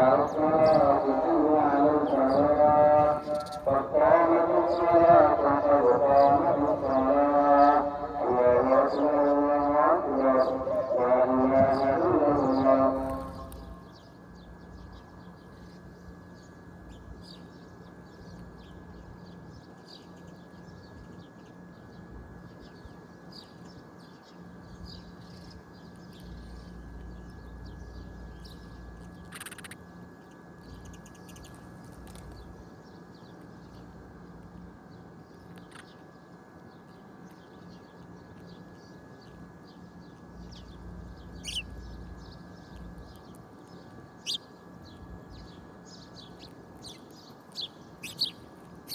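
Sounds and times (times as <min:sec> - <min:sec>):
low hum: 0:00.0 - 0:19.7, 0:24.6 - 0:48.9
bird chirps: 0:03.2 - 0:03.7, 0:40.4 - 0:48.9
bird call: 0:41.4 - 0:41.8, 0:44.2 - 0:44.5, 0:46.4 - 0:48.9.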